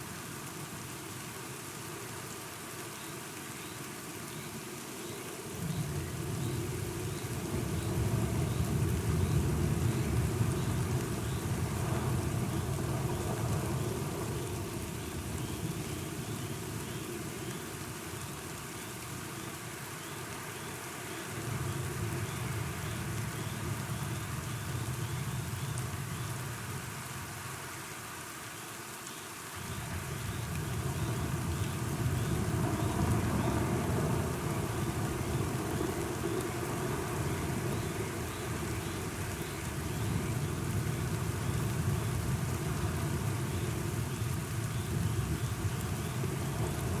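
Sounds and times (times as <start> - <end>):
rain hiss: 0.0 - 47.0
deep thunder rumbling: 29.6 - 47.0.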